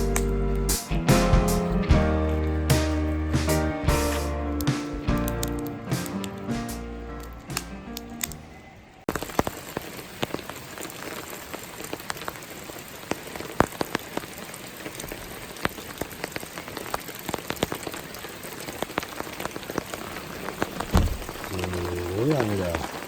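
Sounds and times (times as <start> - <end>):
steady rain falling: 9.0 - 23.0
raindrops striking sharply: 9.1 - 23.0.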